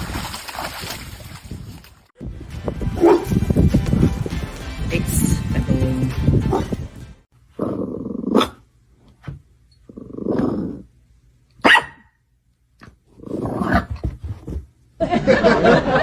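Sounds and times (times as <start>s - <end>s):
dog barking and growling: 2.9s - 3.4s, 6.4s - 6.9s, 7.5s - 8.7s, 11.6s - 12.1s, 13.2s - 14.0s.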